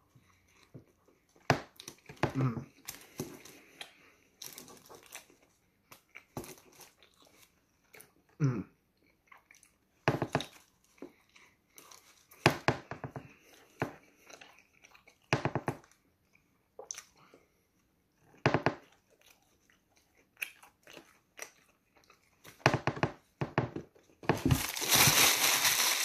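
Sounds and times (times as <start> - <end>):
man chewing: 0.0 - 12.4, 13.2 - 24.2
paper wrapper crinkling: 24.3 - 26.0.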